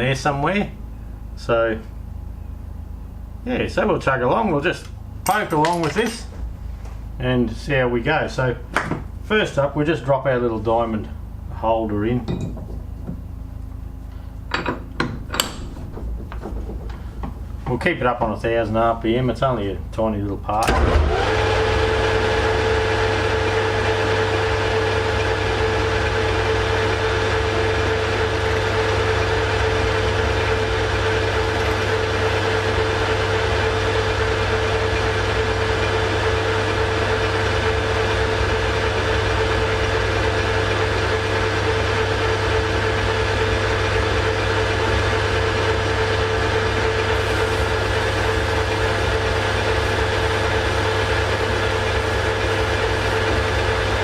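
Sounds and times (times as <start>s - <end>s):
metal lathe whining: 21.1s - 54.0s.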